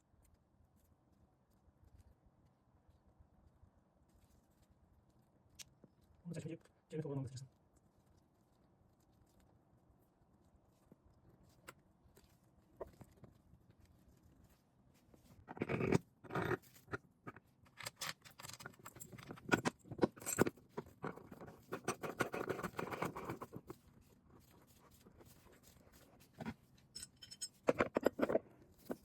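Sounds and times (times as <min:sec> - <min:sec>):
tools knocking and clicking: 0:15.5 - 0:23.4, 0:27.0 - 0:29.0.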